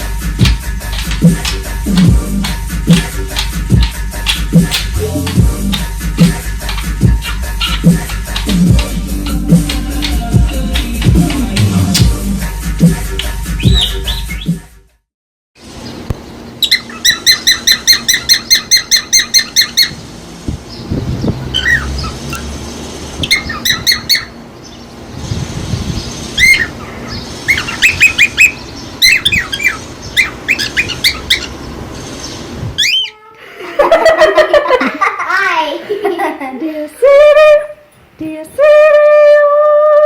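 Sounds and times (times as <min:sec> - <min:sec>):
parrot chirping calls: 0:00.9 - 0:12.2, 0:13.6 - 0:14.5, 0:16.5 - 0:20.0, 0:21.4 - 0:24.8, 0:26.1 - 0:33.4
parrot squawking: 0:00.9 - 0:12.2, 0:13.6 - 0:14.5, 0:16.6 - 0:20.0, 0:21.5 - 0:22.5, 0:23.2 - 0:24.4, 0:26.3 - 0:31.7, 0:32.8 - 0:33.4.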